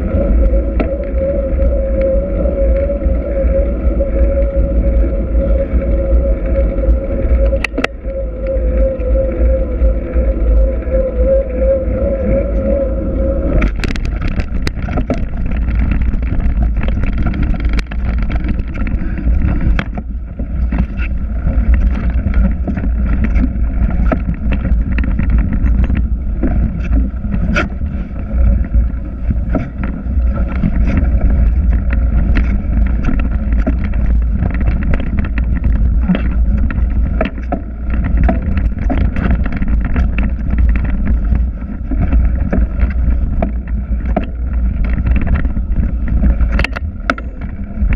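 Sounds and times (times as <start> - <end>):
wind buffeting microphone: 0.0 - 47.9
bike clicks and rattles: 13.4 - 47.9.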